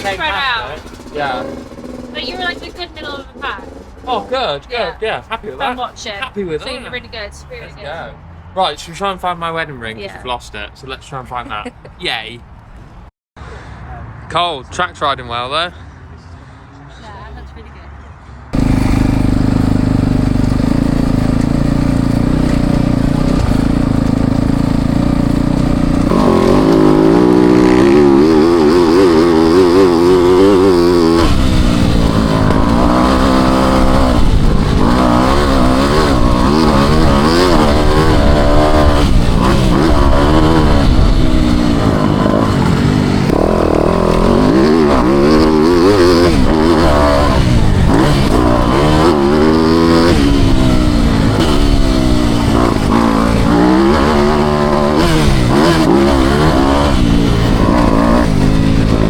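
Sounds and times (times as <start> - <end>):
motocross bike engine revving: 0.0 - 5.7, 18.6 - 59.0.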